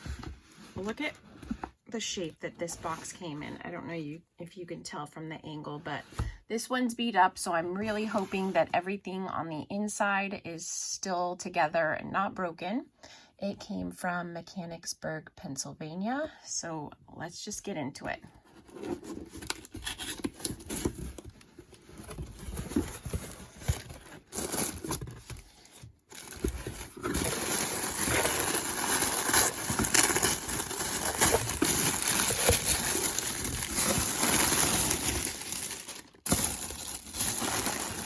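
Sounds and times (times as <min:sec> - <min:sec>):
packing crinkling and rustling: 0:18.6 - 0:38.0.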